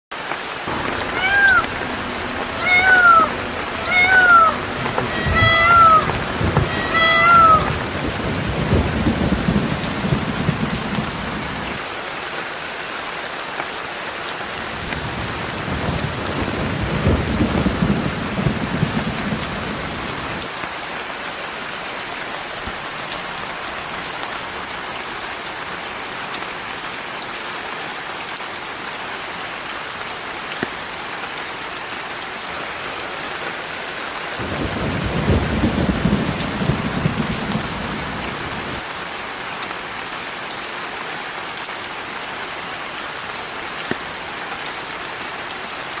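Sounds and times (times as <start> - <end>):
rain hissing: 0.2 - 26.2, 29.4 - 45.6
low rumble: 0.7 - 11.6.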